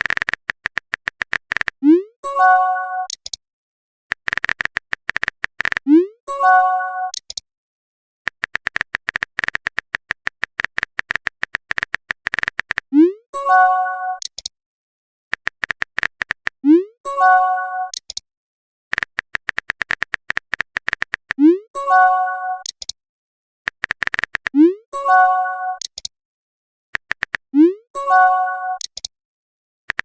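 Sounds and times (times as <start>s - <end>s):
rapid keyboard typing: 0.0s - 1.8s, 4.1s - 5.8s, 8.3s - 12.9s, 15.3s - 16.6s, 18.9s - 21.4s, 23.7s - 24.6s, 27.0s - 27.5s
chiming message tone: 21.8s - 22.6s, 28.0s - 28.8s.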